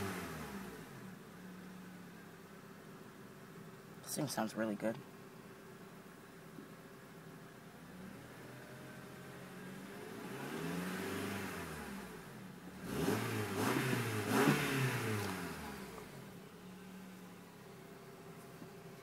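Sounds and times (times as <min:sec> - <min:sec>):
car engine revving: 0:00.0 - 0:01.1, 0:07.8 - 0:17.4.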